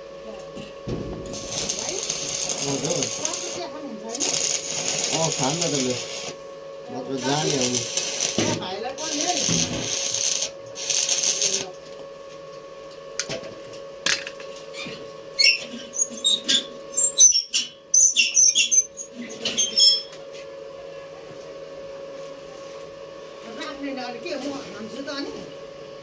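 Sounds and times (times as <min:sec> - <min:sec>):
steady hum: 0:00.0 - 0:14.7.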